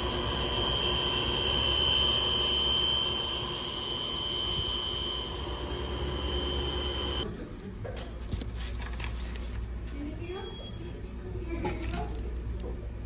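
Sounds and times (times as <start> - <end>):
condenser fan high-pitched whistle: 0.0 - 7.2, 10.3 - 11.0.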